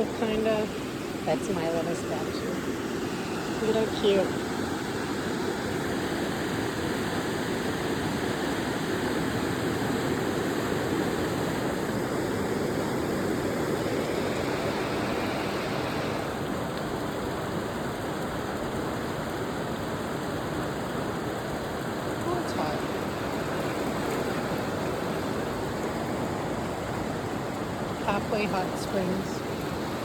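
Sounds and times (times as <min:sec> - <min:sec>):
flowing water rushing: 0:00.0 - 0:30.0.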